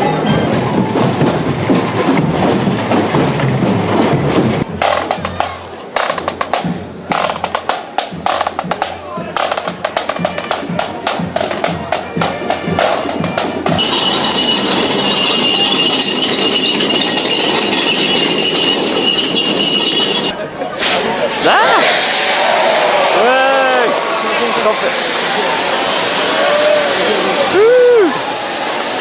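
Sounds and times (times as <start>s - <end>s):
continuous noise: 0.0s - 29.0s
rapid drumming: 0.6s - 20.4s.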